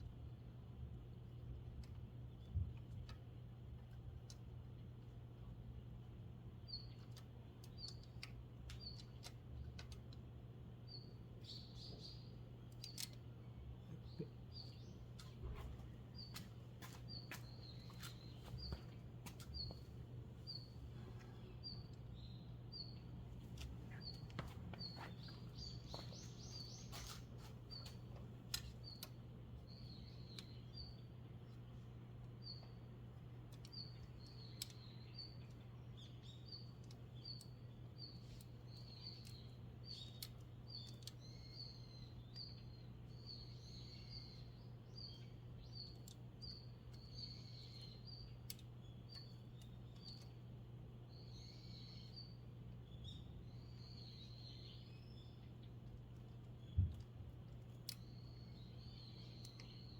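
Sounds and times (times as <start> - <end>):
steady low hum: 0.0 - 59.9
light clicks and taps: 1.7 - 5.1, 6.9 - 10.3, 12.7 - 19.9, 55.6 - 58.1
small bird chirping: 6.6 - 10.2, 10.8 - 59.9.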